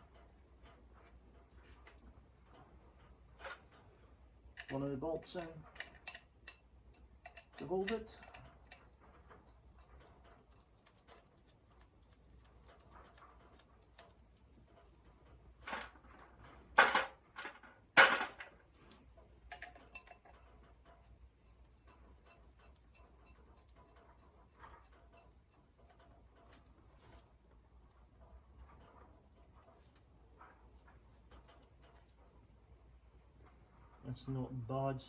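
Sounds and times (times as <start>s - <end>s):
metal bolts clinking: 4.5s - 9.6s, 19.4s - 21.2s.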